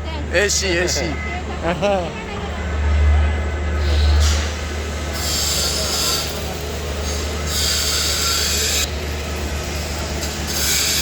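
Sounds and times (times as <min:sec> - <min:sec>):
welding machines humming: 0:03.8 - 0:11.0.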